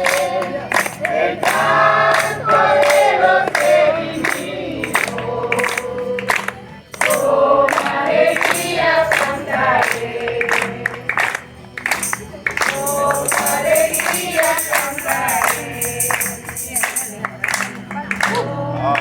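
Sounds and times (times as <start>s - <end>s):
group singing a worship chorus: 0.0s - 17.2s, 18.1s - 19.0s
steady percussive beat: 12.0s - 17.2s.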